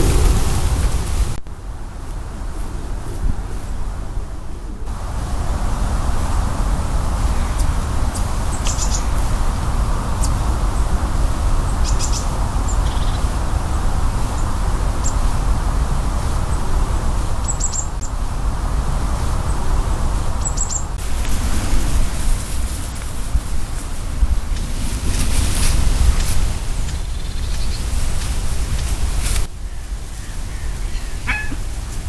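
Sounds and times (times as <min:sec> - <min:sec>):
wind noise: 0:00.0 - 0:32.0
small bird chirping: 0:07.4 - 0:09.2, 0:11.7 - 0:13.3, 0:17.4 - 0:18.0, 0:20.4 - 0:21.0, 0:26.9 - 0:28.9, 0:29.6 - 0:31.7.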